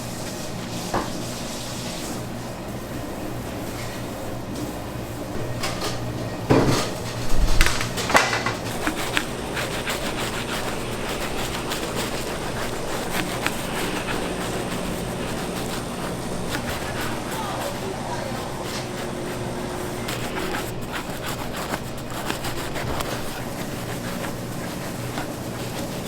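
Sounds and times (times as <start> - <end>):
machine hum: 2.6 - 26.0
utensils and trays clanking: 5.4 - 26.0.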